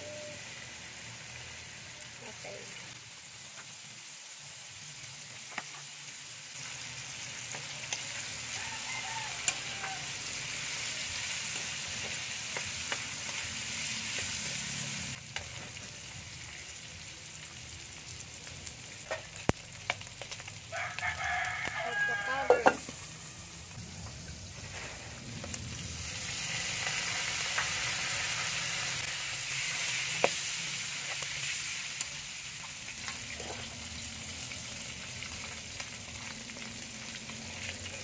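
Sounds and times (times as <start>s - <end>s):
pork sizzling in oil: 0.0s - 38.0s
rooster crowing: 8.4s - 10.5s, 20.7s - 23.0s.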